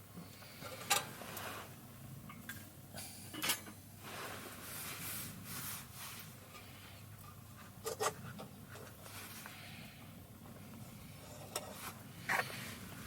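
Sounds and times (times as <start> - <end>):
objects scraping and rustling: 0.6 - 1.8, 3.5 - 9.8, 10.8 - 13.0.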